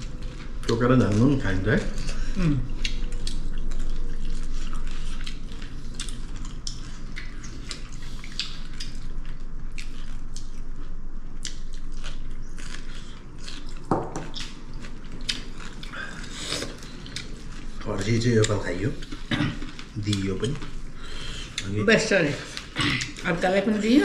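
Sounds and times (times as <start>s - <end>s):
chewing and biting: 1.9s - 20.8s.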